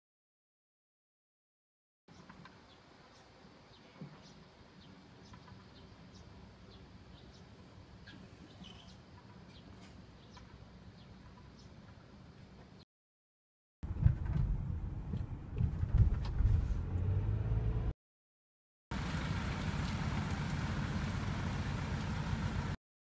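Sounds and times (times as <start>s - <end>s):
faint bird chirping: 2.1s - 12.1s.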